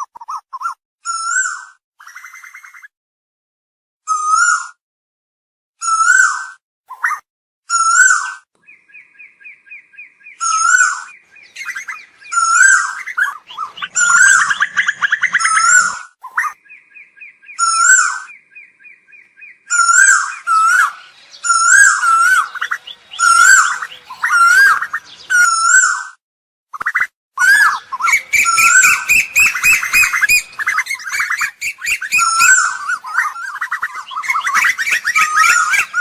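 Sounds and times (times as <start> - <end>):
bird calling loudly: 5.8 - 26.2, 26.8 - 36.0
rapid bird chattering: 8.9 - 26.0, 26.8 - 36.0.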